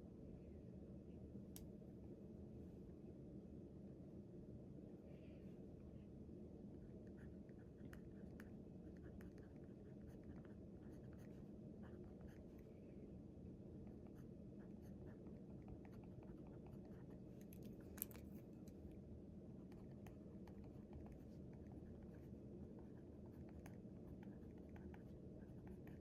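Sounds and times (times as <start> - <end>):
low room hum: 0.0 - 26.0
pen scratching on paper: 8.9 - 12.5, 19.8 - 26.0.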